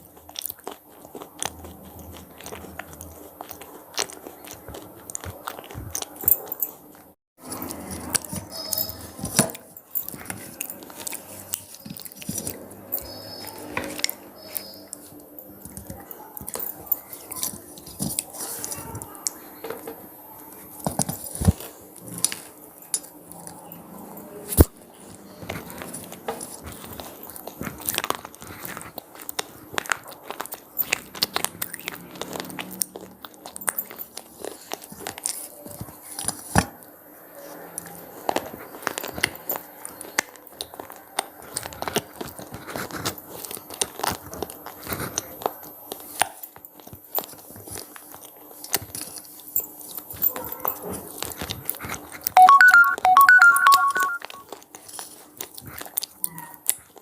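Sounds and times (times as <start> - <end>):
crunchy snacks being chewed: 0.0 - 19.5, 20.7 - 57.0
short tone with steady pitches: 52.4 - 54.4.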